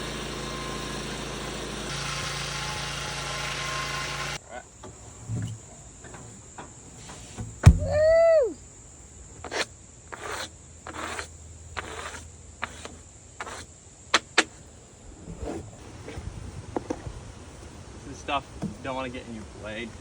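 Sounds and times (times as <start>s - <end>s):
sharp knock: 7.6s - 8.2s
short falling pitched sound: 7.6s - 8.5s
short scrapes and knocks: 9.4s - 14.6s.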